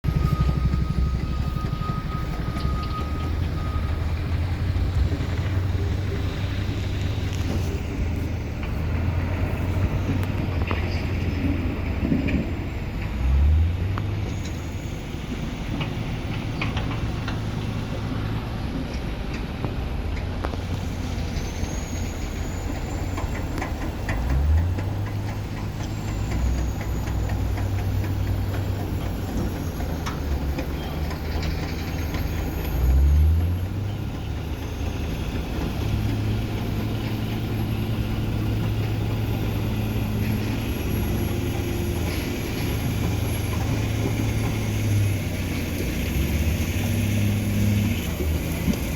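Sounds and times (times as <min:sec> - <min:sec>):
helicopter rotors droning: 0:00.0 - 0:13.1.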